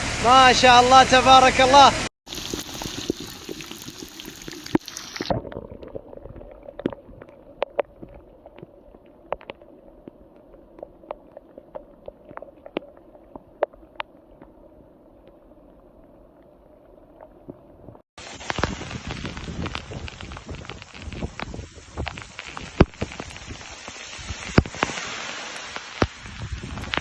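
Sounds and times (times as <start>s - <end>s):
rushing water: 0.0s - 27.0s
water dripping: 2.3s - 17.6s.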